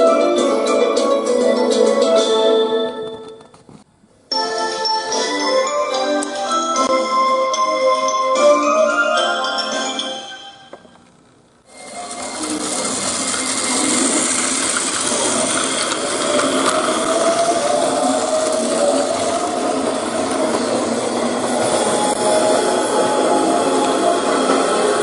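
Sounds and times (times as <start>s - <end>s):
music: 0.0s - 11.0s, 11.7s - 20.4s
toy train motor whirring: 11.7s - 19.3s.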